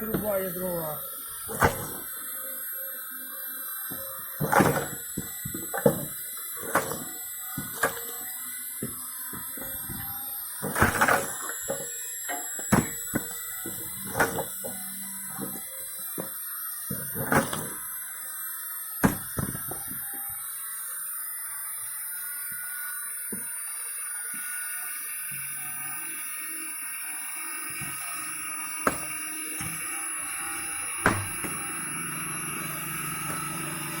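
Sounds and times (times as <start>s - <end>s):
firewood being split: 19.0s - 19.8s, 28.8s - 29.7s, 31.0s - 31.6s.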